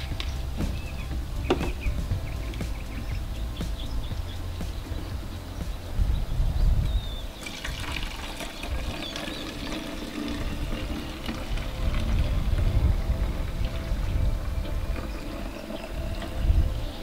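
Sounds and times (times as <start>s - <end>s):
water pouring into plastic bottle: 7.4s - 17.0s.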